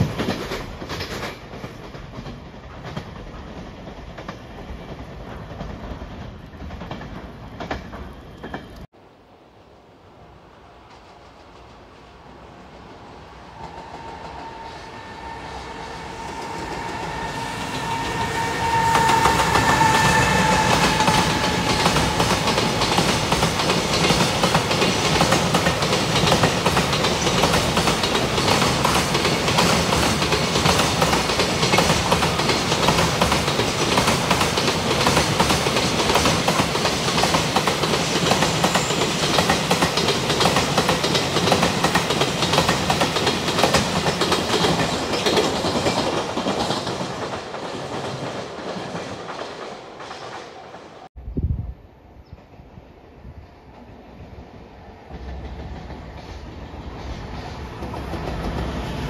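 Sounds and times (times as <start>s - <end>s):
train wheels rumbling on rails: 0.0s - 8.9s, 10.4s - 51.2s, 52.2s - 59.0s
wheels clacking over rail joints: 13.5s - 51.1s.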